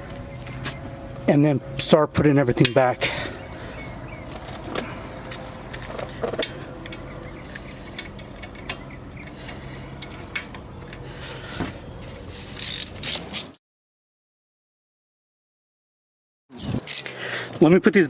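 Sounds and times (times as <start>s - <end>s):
ratchet and metal parts clicking: 12.5s - 13.6s, 16.6s - 17.1s.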